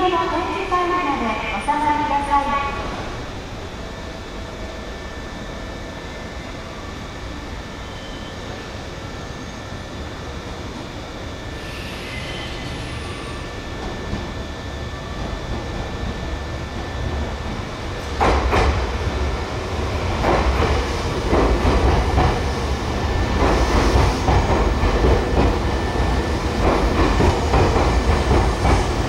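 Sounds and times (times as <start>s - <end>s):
train rumble: 9.8s - 29.0s.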